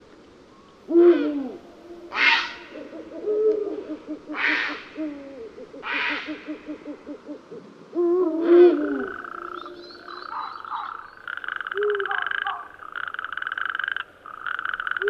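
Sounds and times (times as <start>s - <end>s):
short harsh owl calls: 0.9s - 7.2s
owls hooting: 0.9s - 13.5s.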